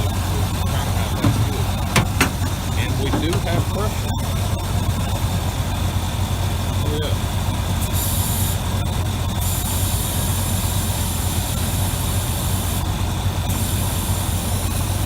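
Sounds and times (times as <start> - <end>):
engine fan running: 0.0 - 15.0
engine idling: 0.0 - 15.0
hiss: 13.5 - 15.0.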